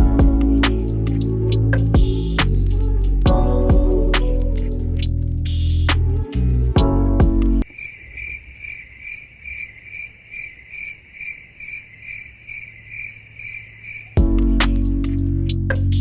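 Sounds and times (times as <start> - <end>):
cricket chirping: 7.6 - 15.1.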